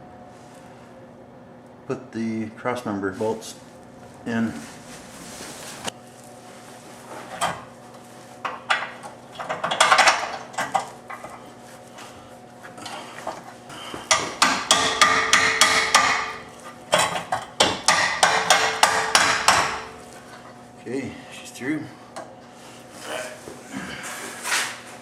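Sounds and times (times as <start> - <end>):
hammer striking metal: 14.1 - 16.4, 17.6 - 20.0.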